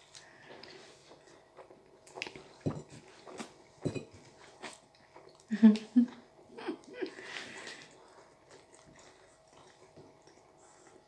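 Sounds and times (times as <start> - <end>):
wet biting and chewing: 0.1 - 3.8.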